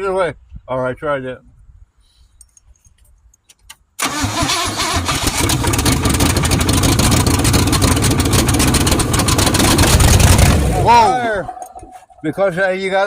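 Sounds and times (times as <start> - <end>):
engine starting and running: 4.0 - 12.1.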